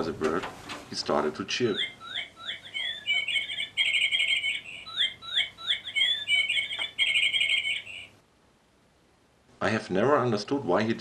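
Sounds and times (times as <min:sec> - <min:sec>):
bird whistling and trilling: 0:01.7 - 0:08.1.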